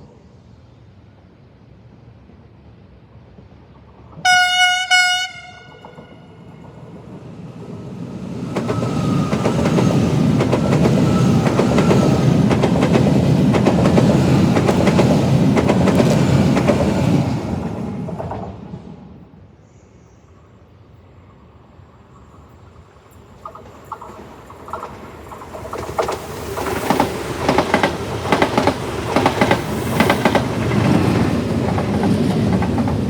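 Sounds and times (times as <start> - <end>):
train horn blasts: 4.2 - 6.5
train wheels clicking over rail joints: 8.5 - 18.7, 23.2 - 33.0.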